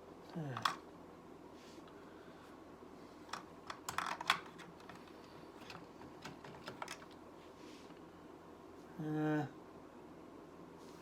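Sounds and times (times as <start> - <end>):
plastic toy bricks clicking: 3.3 - 4.7.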